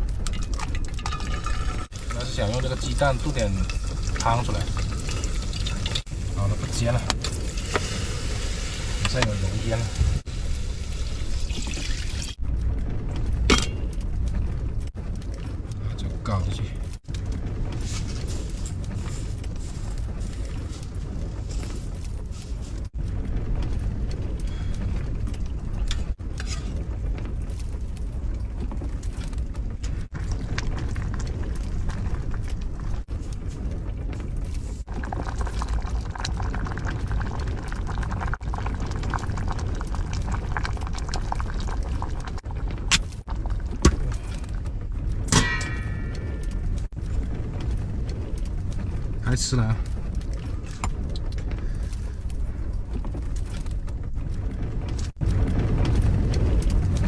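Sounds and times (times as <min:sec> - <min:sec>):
soup simmering in a pot: 0:00.0 - 0:06.4, 0:07.2 - 0:12.4, 0:34.8 - 0:44.6
wind buffeting a car: 0:00.0 - 0:57.0.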